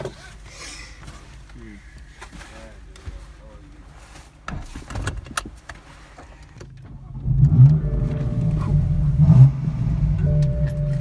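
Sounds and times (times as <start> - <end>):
car engine starting and idling: 6.3 - 11.0.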